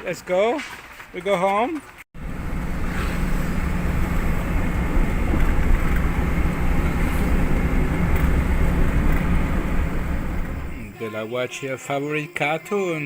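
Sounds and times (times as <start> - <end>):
vehicle engine and road rumble: 2.2 - 10.9.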